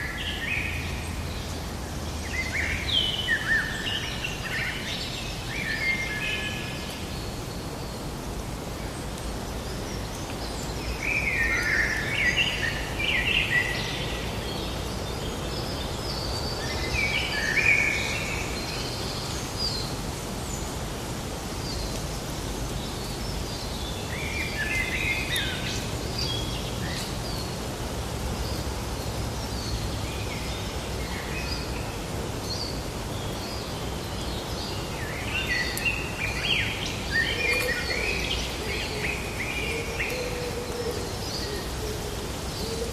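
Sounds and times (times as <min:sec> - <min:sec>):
birds singing and chirping: 0:21.6 - 0:42.9.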